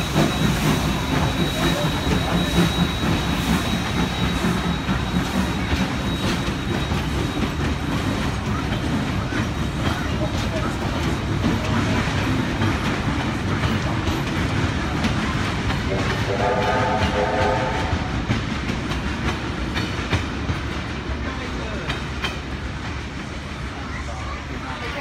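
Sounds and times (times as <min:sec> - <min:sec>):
train carriages rumbling past: 0:00.0 - 0:25.0
train whistle: 0:15.9 - 0:18.2.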